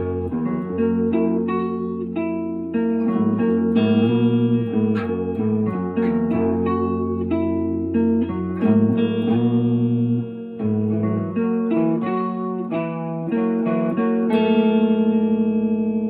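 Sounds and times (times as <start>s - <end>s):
plucked guitar notes: 0.0s - 16.0s.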